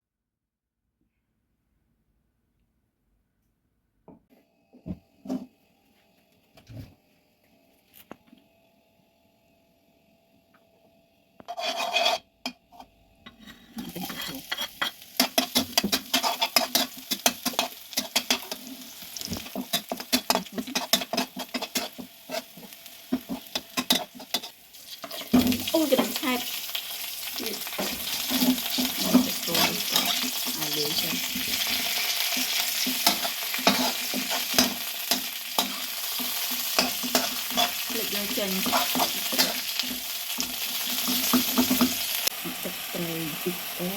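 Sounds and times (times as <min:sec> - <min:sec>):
spatula scraping a pan: 0:11.4 - 0:26.5, 0:27.2 - 0:42.3
oil sizzling: 0:13.8 - 0:43.9.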